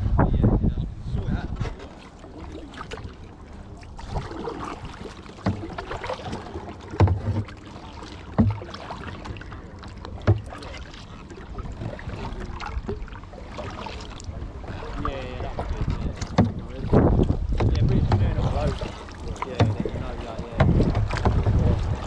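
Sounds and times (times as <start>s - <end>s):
paddle strokes splashing in water: 1.5s - 22.0s
short low knocks: 8.3s - 9.4s, 10.2s - 10.6s, 15.8s - 18.7s, 19.6s - 22.0s.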